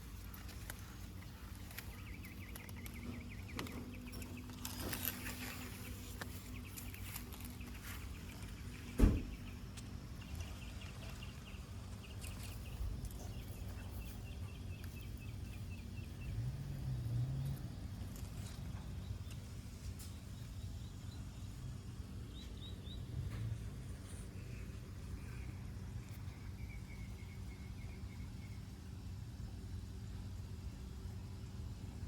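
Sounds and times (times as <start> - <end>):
sharp knock: 9.0 - 9.4.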